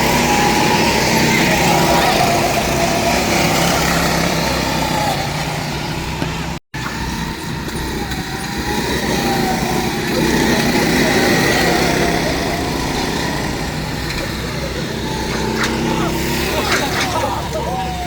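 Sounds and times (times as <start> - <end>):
high-revving go-kart engines: 0.0 - 18.0.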